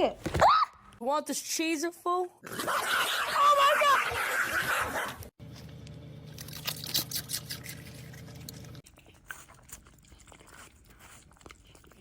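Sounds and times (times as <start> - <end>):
dog chewing: 6.3 - 12.0.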